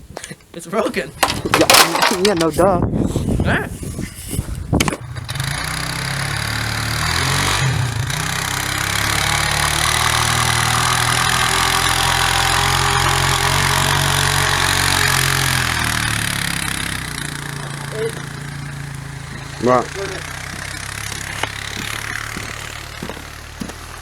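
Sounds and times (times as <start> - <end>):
car engine revving: 5.0 - 24.0.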